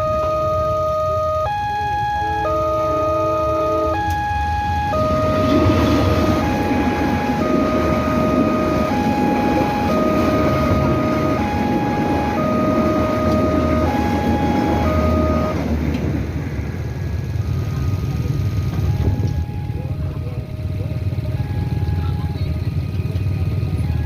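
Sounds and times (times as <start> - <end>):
two-tone level crossing alarm: 0.0 - 15.7, 16.9 - 22.4
train rumbling past: 3.6 - 21.2.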